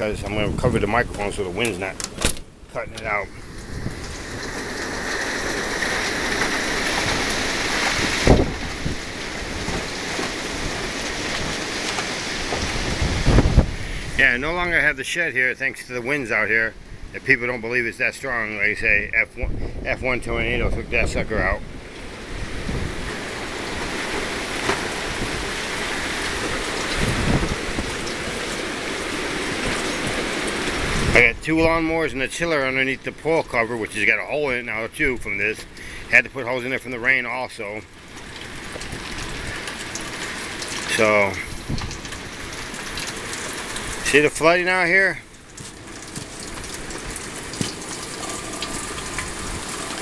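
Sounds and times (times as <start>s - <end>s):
steady rain falling: 0.0s - 50.0s.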